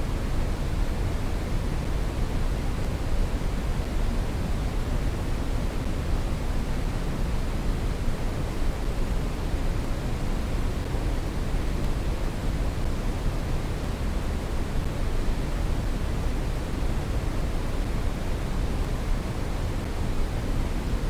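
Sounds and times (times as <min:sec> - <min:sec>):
steady brown noise: 0:00.0 - 0:21.0.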